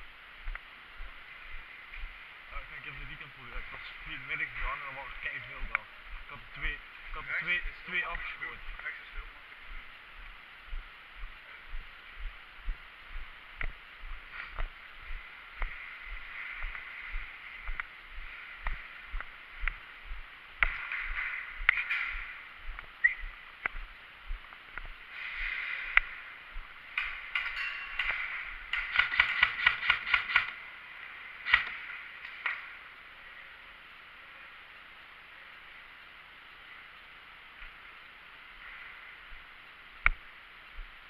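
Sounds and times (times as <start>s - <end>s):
footsteps walking: 0.0s - 29.6s, 39.3s - 41.0s
clothing and gear rustling: 13.7s - 20.0s
airsoft gun firing burst: 27.0s - 30.6s, 31.4s - 31.8s.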